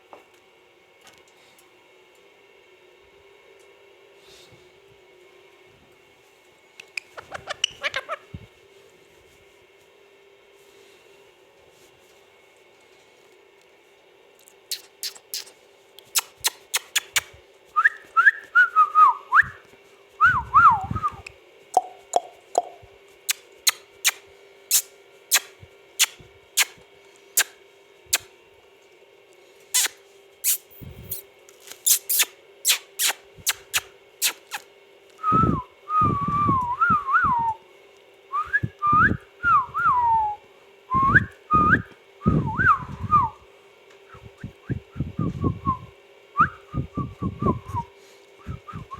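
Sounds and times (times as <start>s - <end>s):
parakeet whistling: 7.0s - 8.4s, 14.7s - 15.5s.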